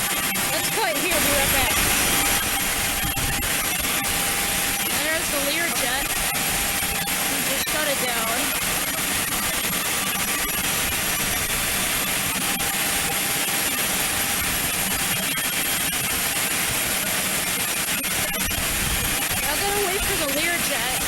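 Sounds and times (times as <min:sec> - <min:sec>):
jet engines idling: 0:00.0 - 0:09.2, 0:19.4 - 0:21.0.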